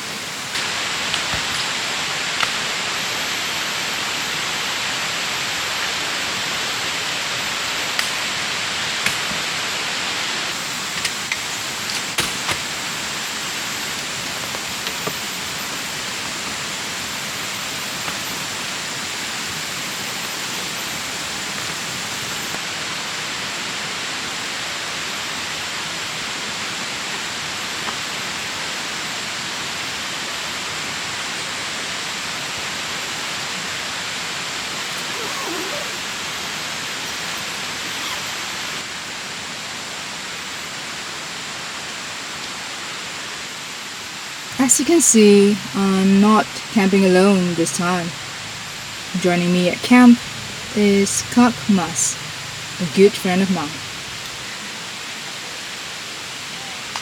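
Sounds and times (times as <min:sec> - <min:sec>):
river water rushing: 0:31.3 - 0:39.4, 0:50.2 - 0:52.8.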